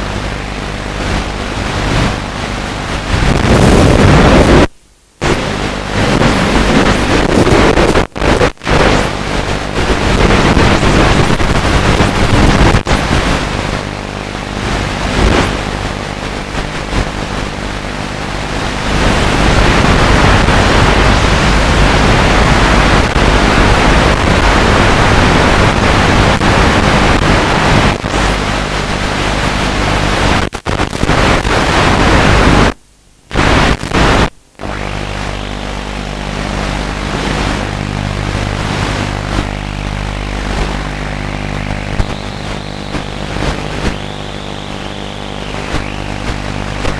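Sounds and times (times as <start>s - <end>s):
rushing wind: 0.6s - 46.9s
small motor and propeller humming: 34.5s - 46.9s.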